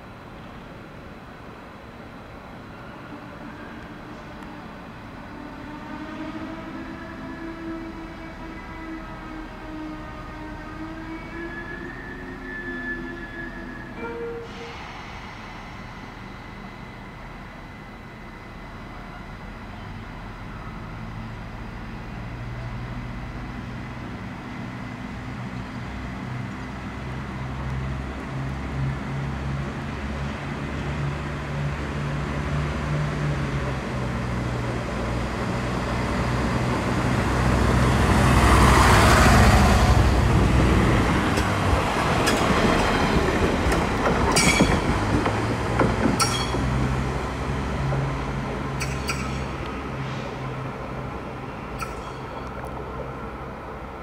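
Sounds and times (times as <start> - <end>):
train wheel clicks: 41.3 - 49.9.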